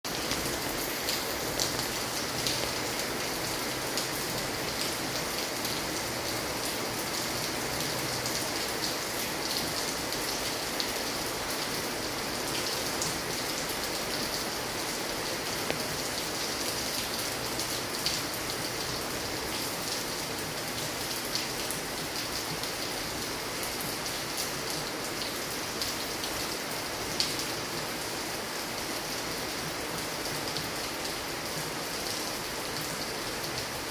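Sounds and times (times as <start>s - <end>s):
raindrops ticking on surface: 0.1s - 27.7s.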